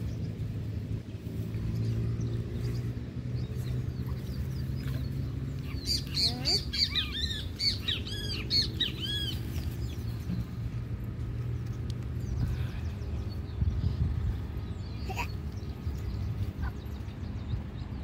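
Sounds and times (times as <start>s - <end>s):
small bird chirping: 1.7s - 10.8s.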